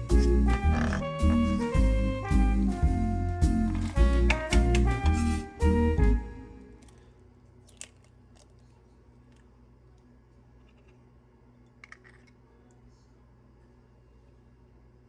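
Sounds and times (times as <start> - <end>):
background music: 0.0 - 6.9.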